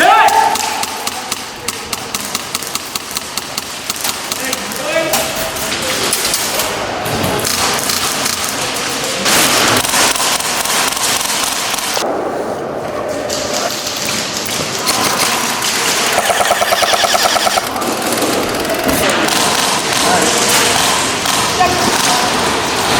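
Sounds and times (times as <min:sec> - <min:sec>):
airsoft guns firing bursts: 0:09.4 - 0:12.0, 0:14.8 - 0:22.5.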